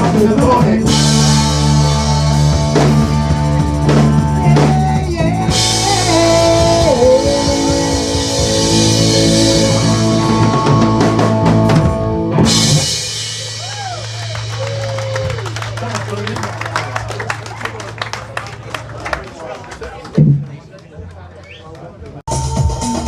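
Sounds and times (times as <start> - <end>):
drum kit and cymbals: 0.0 - 15.6, 22.3 - 23.0
rock band playing: 0.0 - 19.2, 22.3 - 23.0
lead guitar bending notes: 0.9 - 13.1.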